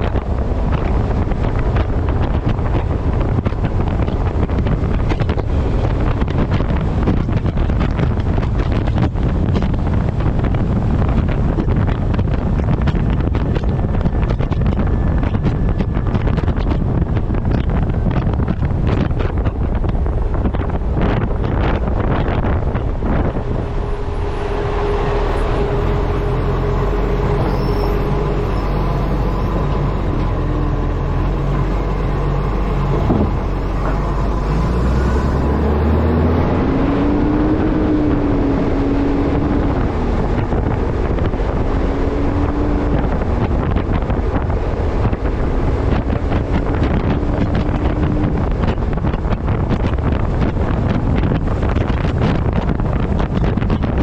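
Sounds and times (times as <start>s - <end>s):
truck engine humming: 0.0s - 54.0s
wind buffeting microphone: 0.0s - 54.0s
wavering high tone: 23.4s - 35.7s.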